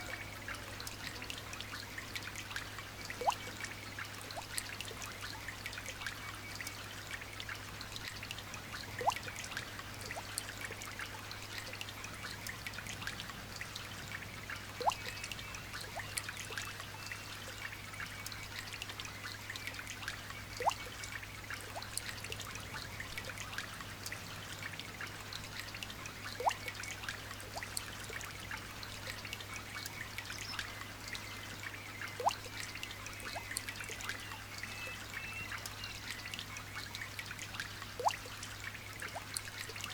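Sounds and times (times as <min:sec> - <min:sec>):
water drop plinking: 0:14.8 - 0:15.2, 0:26.4 - 0:26.8, 0:32.2 - 0:32.5, 0:38.0 - 0:38.3.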